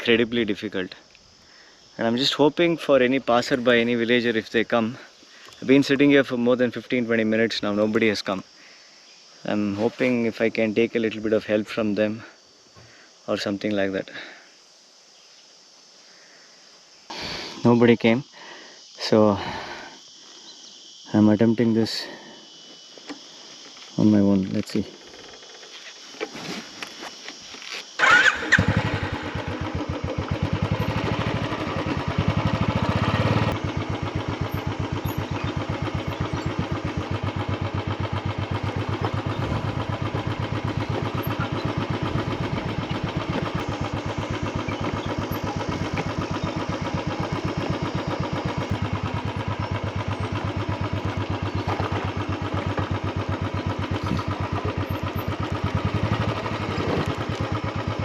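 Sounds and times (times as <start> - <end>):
motorcycle engine running: 28.0 - 58.0.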